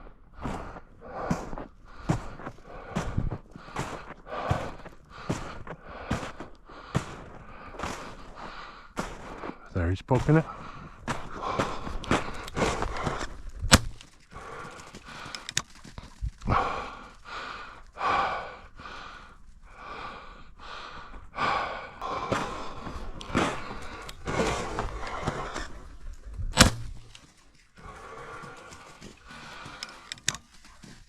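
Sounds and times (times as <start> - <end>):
heavy breathing: 0.0 - 9.7, 10.4 - 26.5, 27.6 - 31.0
footsteps crunching in snow: 0.0 - 19.9, 22.0 - 31.0.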